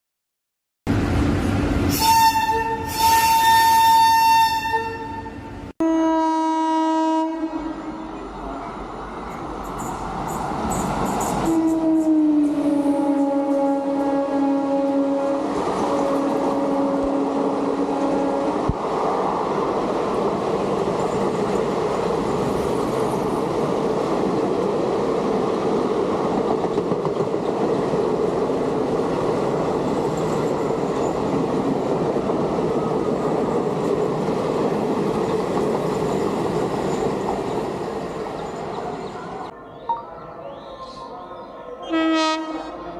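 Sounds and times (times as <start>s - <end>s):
train wheels rumbling on rails: 8.2s - 14.4s, 15.4s - 39.5s.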